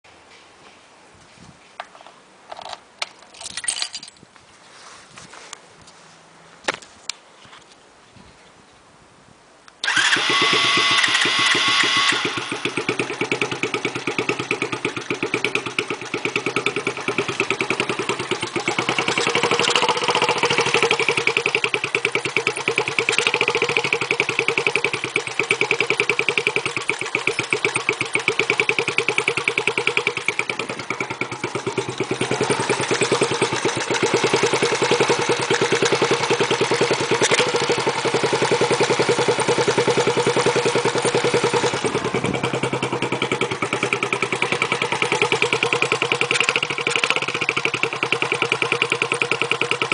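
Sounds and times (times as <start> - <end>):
minibike engine idling: 9.8 - 49.9
starter whine: 9.8 - 49.9.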